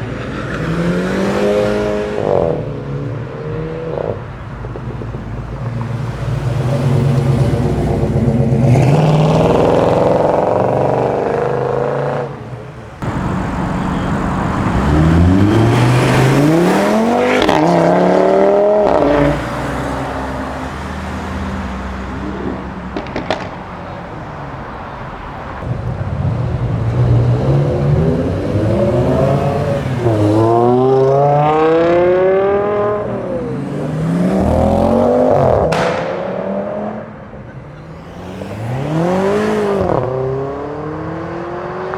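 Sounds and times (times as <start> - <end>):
cars accelerating hard: 0.0 - 41.9
engines running: 12.4 - 41.9.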